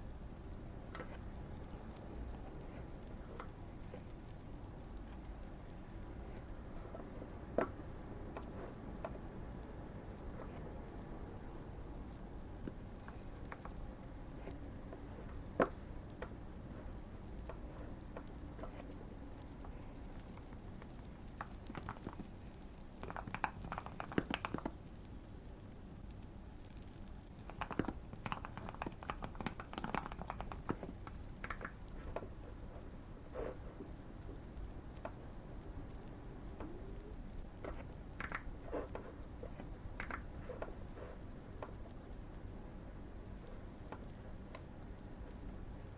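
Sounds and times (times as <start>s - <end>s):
fireplace crackle: 0.0s - 45.9s
mechanical keyboard typing: 20.3s - 24.8s, 27.4s - 32.9s.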